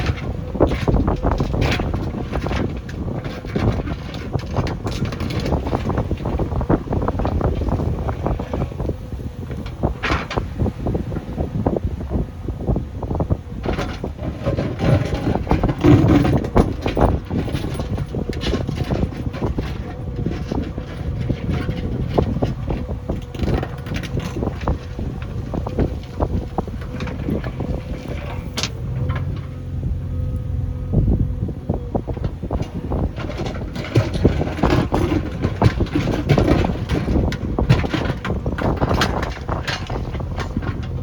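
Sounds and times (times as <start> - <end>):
diesel engine running: 0.0 - 41.0
machine knocks and clatter: 13.2 - 30.9, 31.8 - 41.0.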